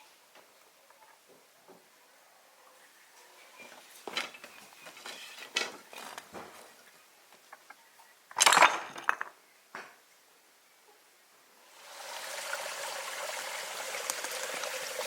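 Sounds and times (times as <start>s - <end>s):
small hard objects clinking: 8.3s - 9.4s.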